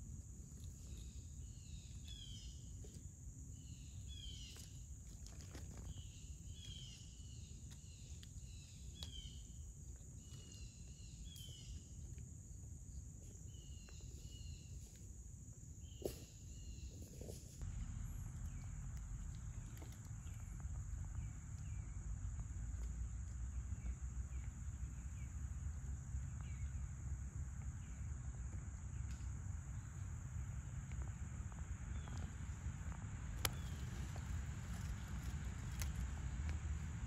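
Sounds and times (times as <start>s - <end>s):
bird chirping: 0.8s - 3.0s, 5.8s - 12.0s
low rumble: 17.2s - 37.0s.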